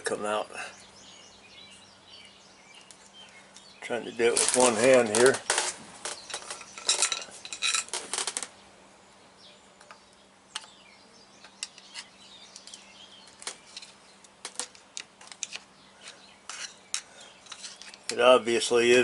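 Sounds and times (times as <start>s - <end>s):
metal tools clinking: 4.3s - 8.4s.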